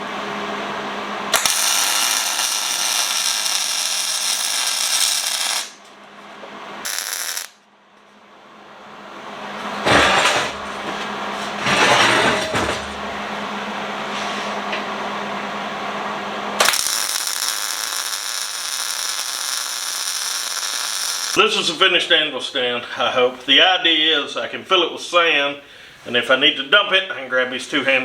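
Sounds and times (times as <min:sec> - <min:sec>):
welding arc crackling: 0:01.3 - 0:05.8, 0:06.8 - 0:07.6, 0:16.6 - 0:21.7.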